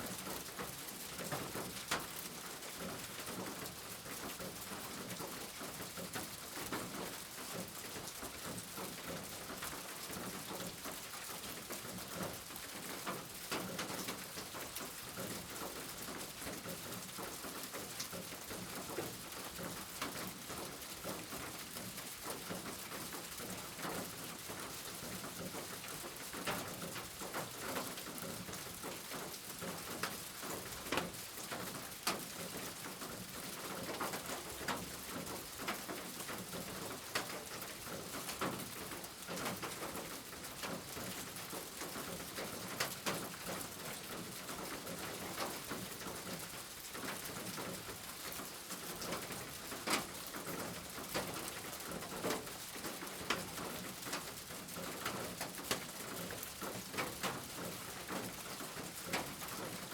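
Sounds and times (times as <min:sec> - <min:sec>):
rain drops tapping: 0:00.1 - 0:59.9.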